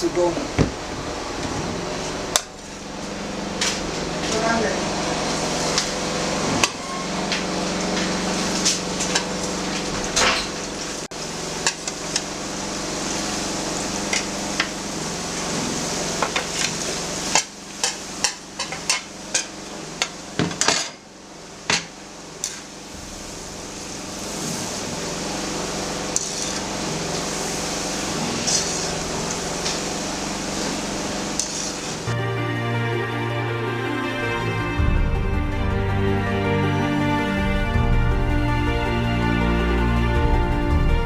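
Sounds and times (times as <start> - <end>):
low hum: 0.0 - 20.4, 21.1 - 41.0
food deep frying in oil: 4.9 - 32.1.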